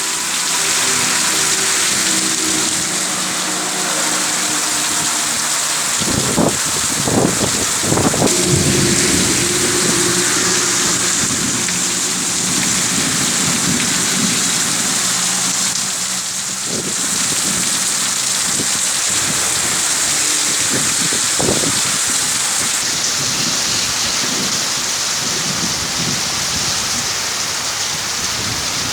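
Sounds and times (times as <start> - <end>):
low hum: 0.0 - 17.8
heavy rain pouring: 0.0 - 28.9.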